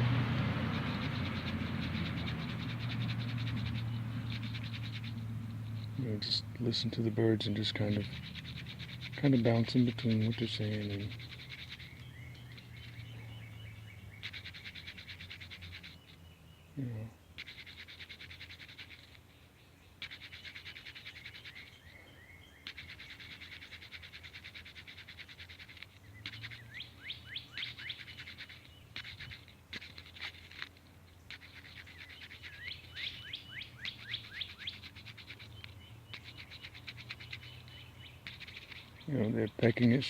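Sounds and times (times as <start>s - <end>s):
birds chattering trills: 0.0s - 40.0s
birds chirping downward sweeps: 0.0s - 40.0s.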